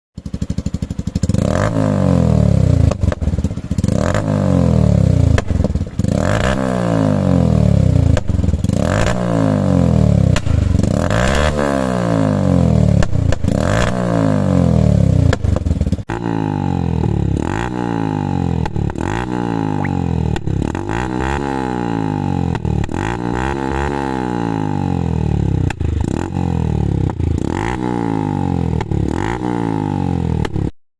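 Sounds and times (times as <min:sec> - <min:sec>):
motorcycle engine revving: 0:00.2 - 0:30.8
exhaust pops: 0:05.3 - 0:06.0.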